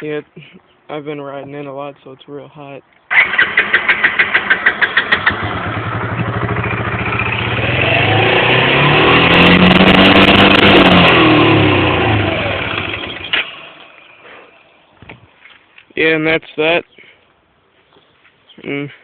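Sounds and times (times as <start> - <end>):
atv engine cranking and revving: 3.1 - 14.3.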